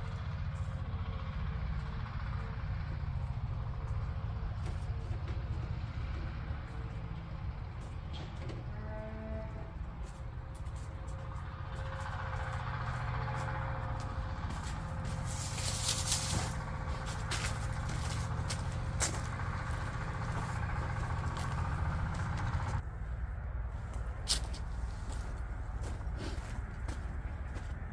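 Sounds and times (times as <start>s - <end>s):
farm machine engine running: 0.0s - 8.8s, 9.6s - 27.9s.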